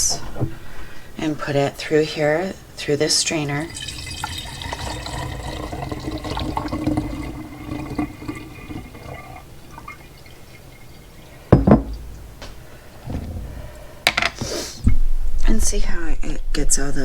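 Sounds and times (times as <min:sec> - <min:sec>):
milk pouring through a strainer: 0:03.4 - 0:11.6
glassware knocks: 0:11.5 - 0:12.5.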